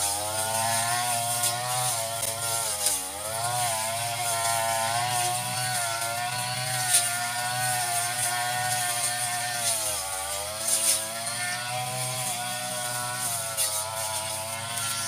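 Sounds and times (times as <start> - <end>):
brush cutter running at high speed: 0.0 - 15.0.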